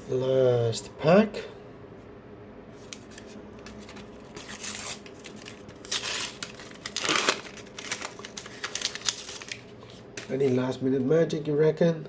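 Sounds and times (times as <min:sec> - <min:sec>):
foil packet tearing and crinkling: 0:03.0 - 0:10.6.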